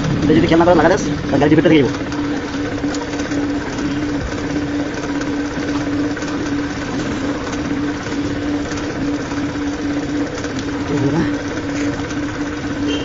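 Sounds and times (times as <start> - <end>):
small motor humming: 0.0 - 13.0.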